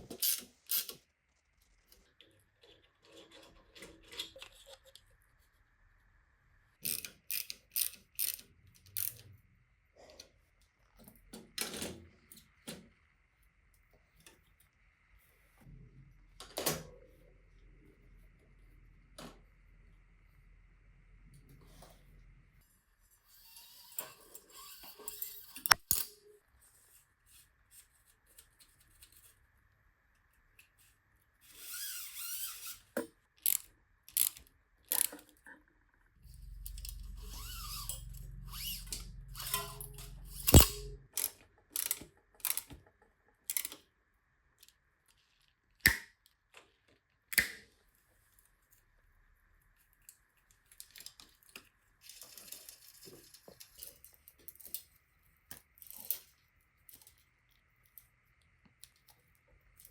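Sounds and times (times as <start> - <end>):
low hum: 36.2 - 41.1
metal tools clicking and clinking: 36.3 - 42.8.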